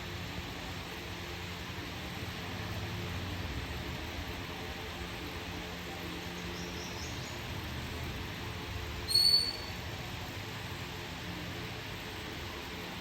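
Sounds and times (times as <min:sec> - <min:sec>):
bird call: 0:09.1 - 0:09.8
faint high chirps: 0:09.1 - 0:09.8.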